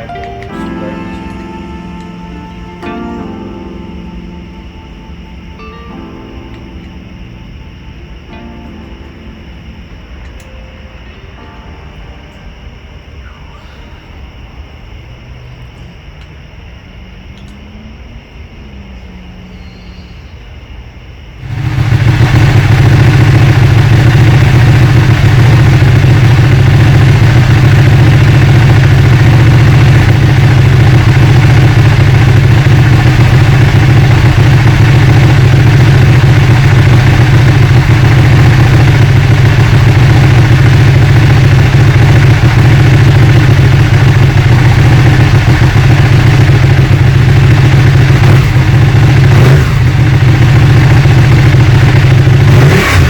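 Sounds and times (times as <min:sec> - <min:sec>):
motorcycle engine idling: 0:21.4 - 0:53.0.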